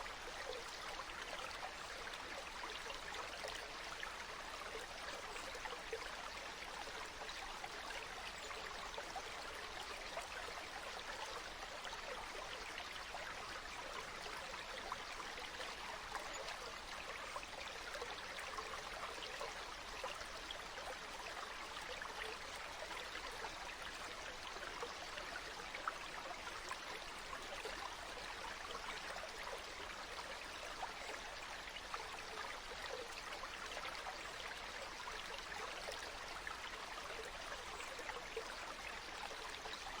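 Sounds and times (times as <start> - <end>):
stream water babbling: 0.0 - 40.0.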